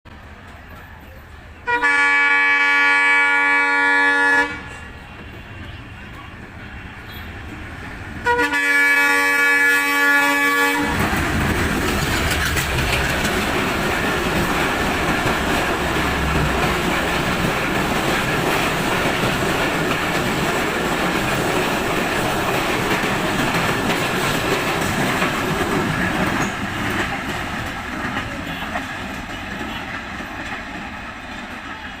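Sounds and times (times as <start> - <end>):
train rumbling past: 0.1 - 32.0
locomotive horn blasts: 1.6 - 7.4, 8.2 - 11.0
wheels clacking over rail joints: 10.6 - 32.0.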